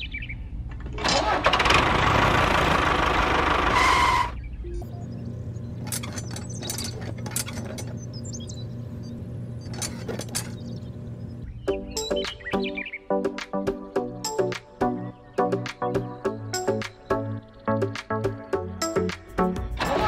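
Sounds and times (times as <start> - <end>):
toy tractor motor running: 1.1 - 4.4
low steady hum: 4.4 - 11.7.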